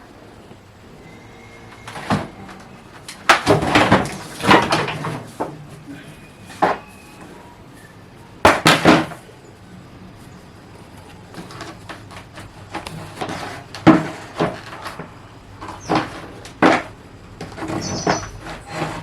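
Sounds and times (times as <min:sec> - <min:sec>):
hard objects knocking and clattering: 0:01.8 - 0:05.6, 0:11.3 - 0:19.0.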